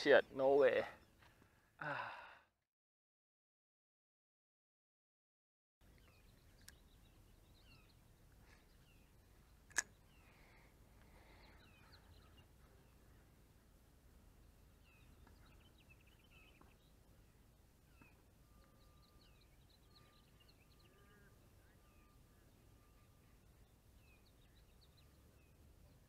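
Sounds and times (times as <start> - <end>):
faint small birds chirping: 5.8 - 26.0.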